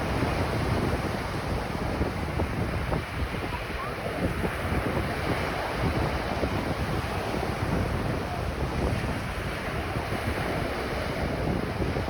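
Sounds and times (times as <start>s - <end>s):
ocean surf on a beach: 0.0s - 12.0s
wind buffeting the microphone: 0.0s - 12.0s.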